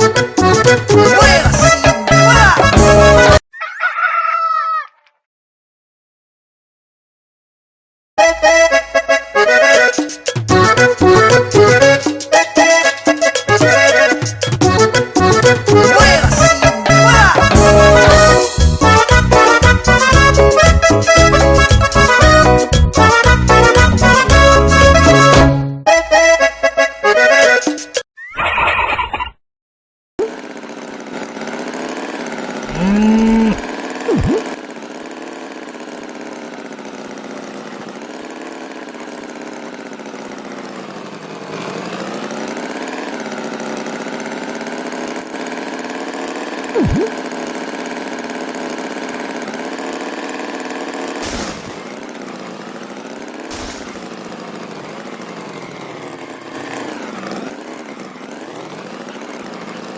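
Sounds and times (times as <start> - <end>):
engine running: 0.0 - 3.4, 8.2 - 27.1, 30.2 - 59.9
short rising call: 32.7 - 34.5.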